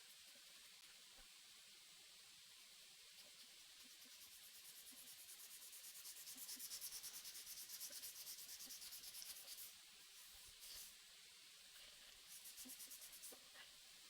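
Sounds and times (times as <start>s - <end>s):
hand sanding strokes: 3.8s - 9.7s, 12.3s - 13.4s.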